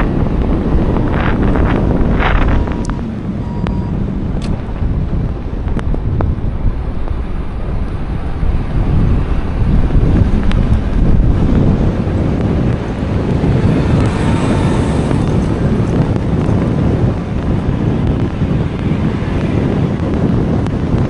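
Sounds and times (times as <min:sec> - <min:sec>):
vehicle rumble on highway: 0:00.0 - 0:21.0
wind buffeting microphone: 0:00.0 - 0:21.0
short beeps: 0:02.4 - 0:04.2.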